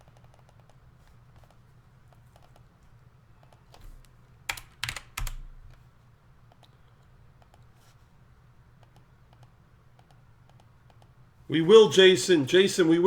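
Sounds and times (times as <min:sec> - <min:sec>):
typing on computer keyboard: 0:03.5 - 0:05.8.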